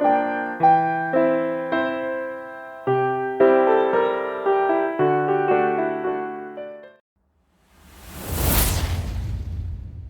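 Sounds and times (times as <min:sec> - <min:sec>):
whoosh with deep rumble: 0:07.6 - 0:10.0.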